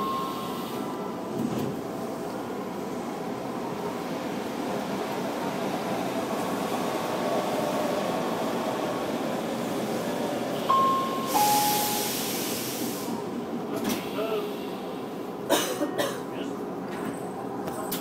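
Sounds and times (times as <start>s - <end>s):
train cab rumble: 0.0s - 18.0s
two-note electronic chime: 10.7s - 12.1s
air hiss: 11.2s - 13.3s.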